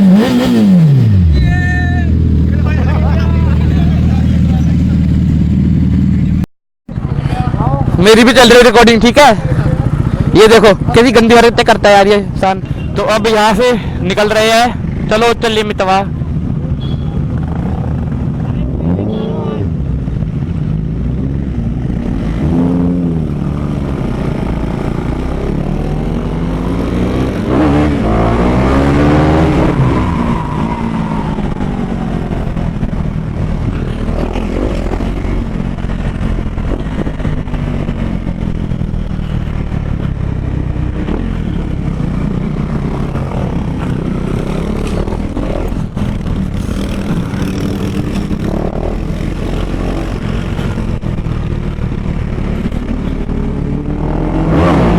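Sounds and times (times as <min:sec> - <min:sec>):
motorcycle engine accelerating: 0:00.0 - 0:12.6, 0:14.4 - 0:54.9.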